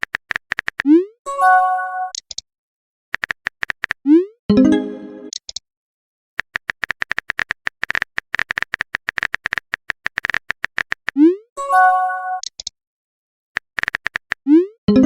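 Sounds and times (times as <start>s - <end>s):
phone keyboard typing clicks: 0.0s - 0.9s, 3.2s - 4.0s, 6.4s - 11.2s, 13.6s - 14.5s.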